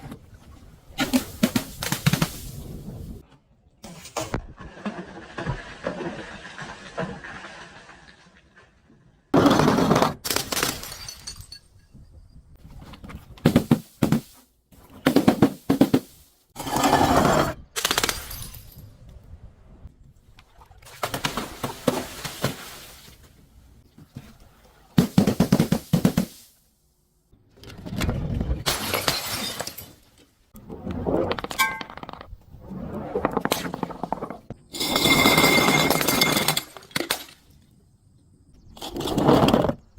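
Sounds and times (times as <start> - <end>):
objects crushing and breaking: 28.1 - 30.2.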